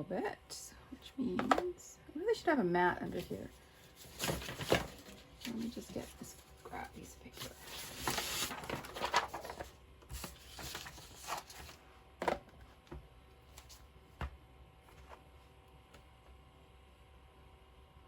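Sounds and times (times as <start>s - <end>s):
paper rustling and sliding: 3.2s - 11.8s.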